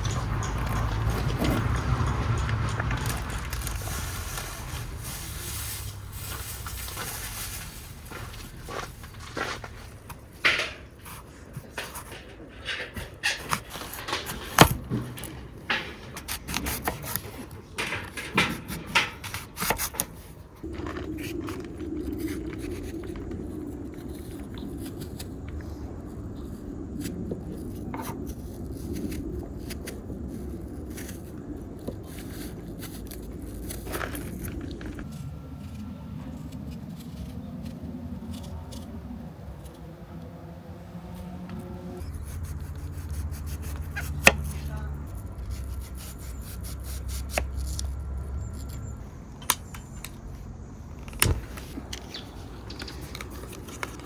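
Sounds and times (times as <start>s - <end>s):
objects clicking and scraping: 0.0s - 39.8s, 51.0s - 54.0s
steady rasping scrape: 41.0s - 47.9s.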